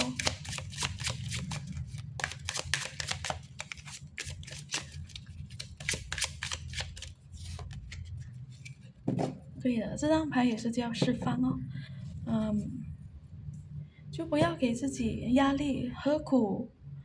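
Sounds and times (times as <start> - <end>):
cards being shuffled: 0.0 - 8.9
low steady hum: 0.0 - 17.0.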